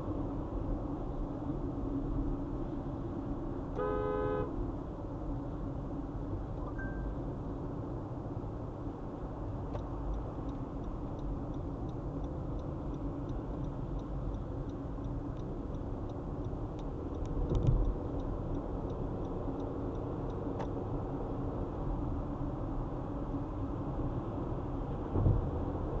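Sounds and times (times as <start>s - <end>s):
car road and engine noise: 0.0s - 26.0s
light regular ticking: 9.7s - 20.8s.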